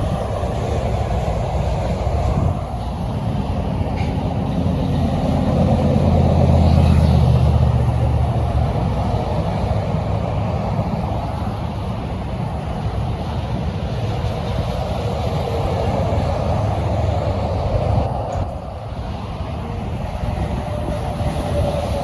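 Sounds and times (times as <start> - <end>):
heavy truck driving past: 0.0 - 11.0
road traffic noise: 0.0 - 22.0.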